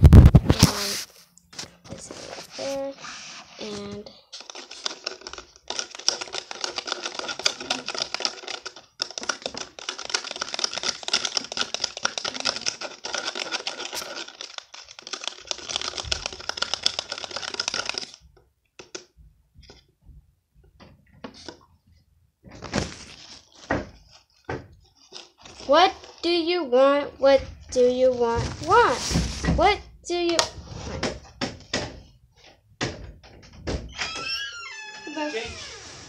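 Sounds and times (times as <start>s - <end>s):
pen stirring wet slime in cup: 2.6s - 18.2s
clicking and scraping against cup: 3.6s - 18.2s.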